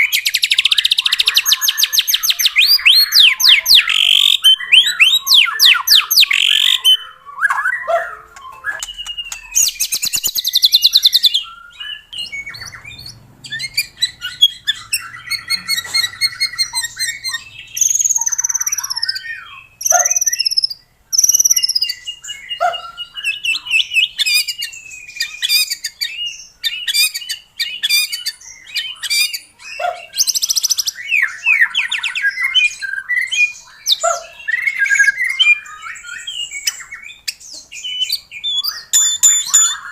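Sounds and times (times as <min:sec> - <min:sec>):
bird chattering calls: 0:00.0 - 0:22.0, 0:33.8 - 0:39.9
songbird singing whistles and trills: 0:00.0 - 0:39.9.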